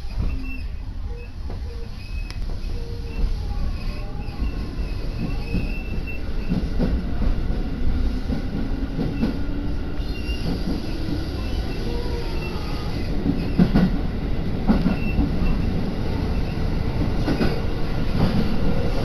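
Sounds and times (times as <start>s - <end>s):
faint high squeals: 0.0s - 6.6s, 10.0s - 13.6s
train rumbling inside carriage: 0.0s - 19.0s.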